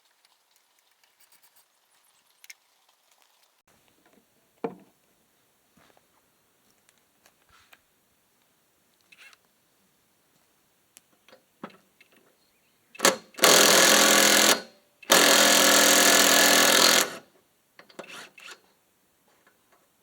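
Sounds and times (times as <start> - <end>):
handheld power tool bursts: 13.0 - 17.3, 17.9 - 18.6.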